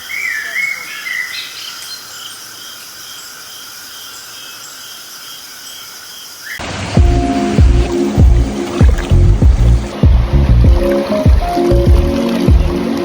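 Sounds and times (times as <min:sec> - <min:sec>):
crickets chirping: 0:00.0 - 0:06.6
music: 0:07.0 - 0:13.0.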